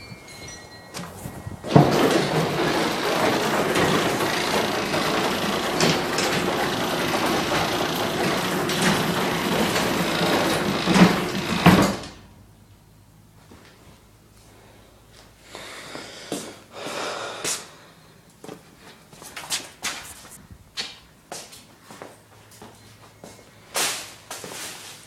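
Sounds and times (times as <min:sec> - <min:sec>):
garage door opener running: 0:00.0 - 0:12.5
garage door knocks: 0:01.0 - 0:12.2
garage door clicks: 0:01.0 - 0:12.3.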